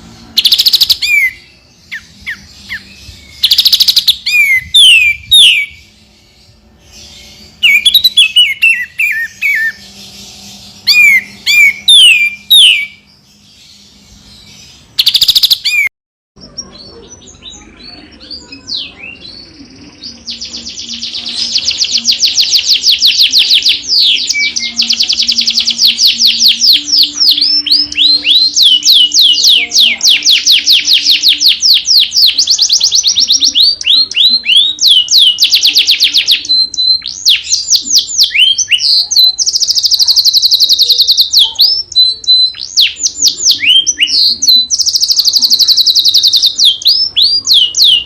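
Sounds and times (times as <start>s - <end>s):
rapidly repeated bird notes: 0.0s - 15.9s, 18.2s - 48.0s
songbird whistling: 0.4s - 6.0s, 7.2s - 9.9s, 10.8s - 13.1s, 15.0s - 15.9s, 22.0s - 48.0s.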